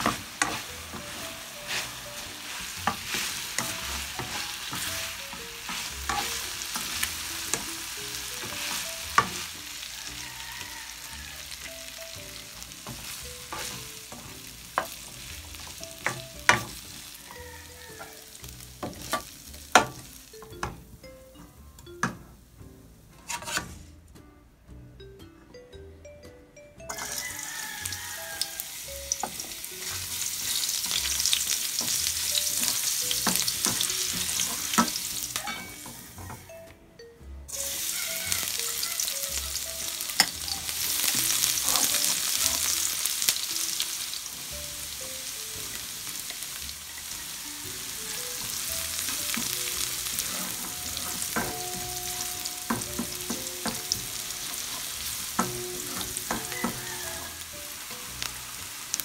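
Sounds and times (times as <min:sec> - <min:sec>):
spatula clicking and scraping pan: 0:00.0 - 0:09.6, 0:12.6 - 0:17.1, 0:23.3 - 0:23.8, 0:29.1 - 0:36.4, 0:40.1 - 0:42.7, 0:48.4 - 0:57.4
food sizzling in hot oil: 0:00.0 - 0:20.5, 0:26.9 - 0:36.5, 0:37.5 - 0:59.0.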